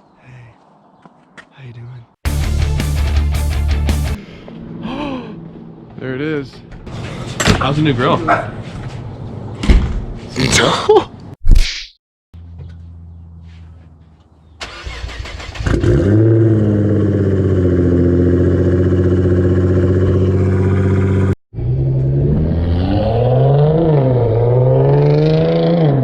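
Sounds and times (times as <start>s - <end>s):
car engine starting and idling: 14.6s - 17.8s
engine revving: 14.6s - 26.0s.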